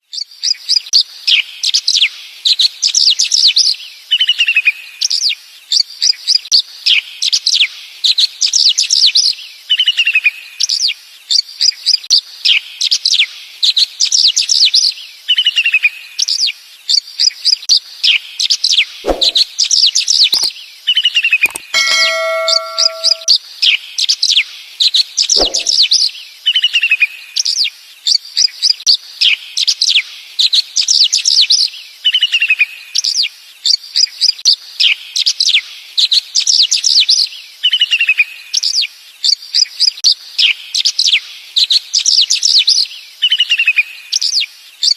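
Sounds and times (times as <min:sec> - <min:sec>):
sharp knocks: 0:19.1 - 0:19.4, 0:21.5 - 0:23.3, 0:25.4 - 0:25.7
small birds chirping: 0:20.2 - 0:20.6
steady pitched tone: 0:21.5 - 0:23.3.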